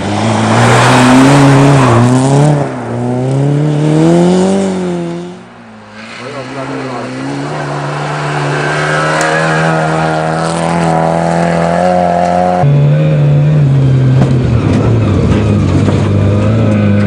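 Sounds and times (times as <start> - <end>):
rally car engine accelerating: 6.0 - 17.0.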